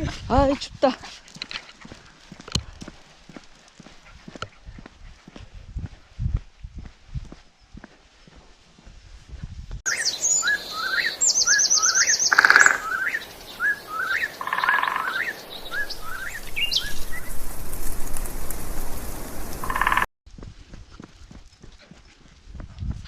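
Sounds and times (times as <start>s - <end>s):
harsh bird call: 9.9s - 17.0s
birds chirping and trilling: 9.9s - 17.7s, 18.8s - 20.0s.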